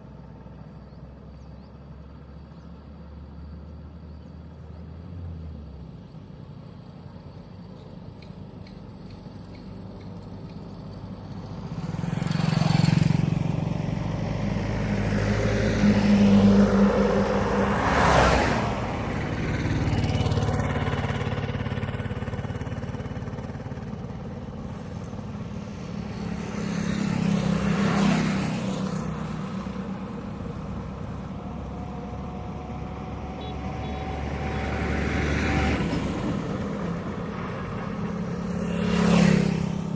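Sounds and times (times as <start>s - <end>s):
vehicles passing close by: 0.0s - 39.9s
low engine drone: 13.3s - 27.6s, 28.6s - 38.8s.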